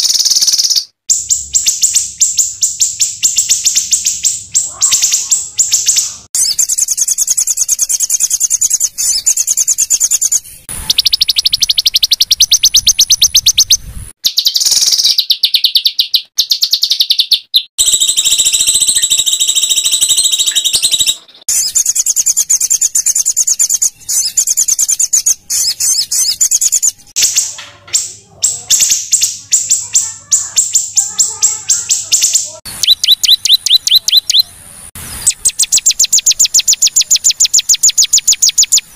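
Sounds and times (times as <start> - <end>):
bird rapid rattling trills: 0.0 - 27.4, 28.7 - 34.5.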